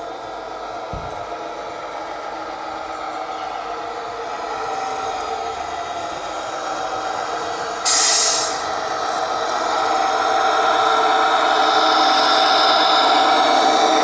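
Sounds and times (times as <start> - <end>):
toy truck engine drone: 0.0 - 14.0
loud hiss: 7.7 - 9.5.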